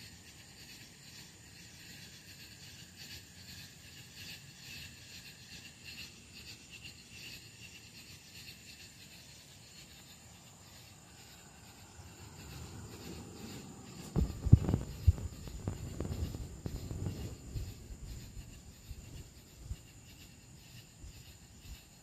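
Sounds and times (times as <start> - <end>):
insect chirping: 0.0 - 22.0
loud low knocks and thumps: 14.1 - 17.5.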